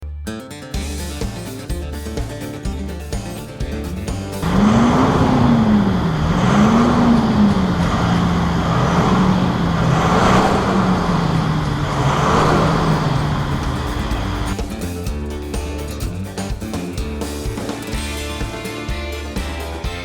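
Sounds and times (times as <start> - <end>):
diesel engine exhaust revving: 4.4 - 16.8.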